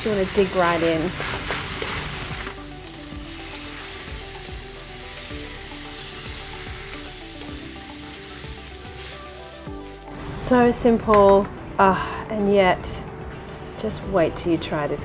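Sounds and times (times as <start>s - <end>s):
rice sizzling in a wok: 0.0s - 10.5s
soft background music: 0.0s - 15.0s.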